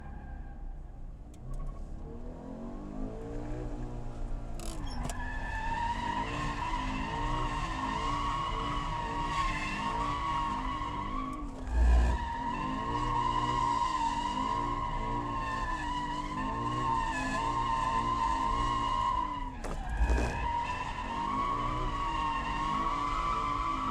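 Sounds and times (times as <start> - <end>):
short low thump: 19.6 - 20.4
car engine revving: 19.6 - 22.0.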